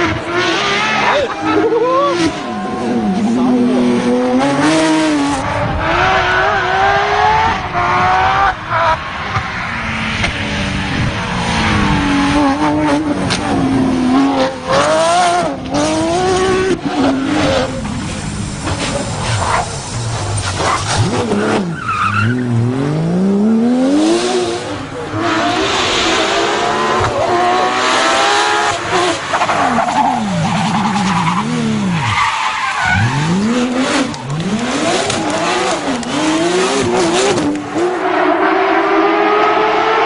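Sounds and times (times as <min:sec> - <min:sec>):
rally car engine revving: 0:00.0 - 0:40.0.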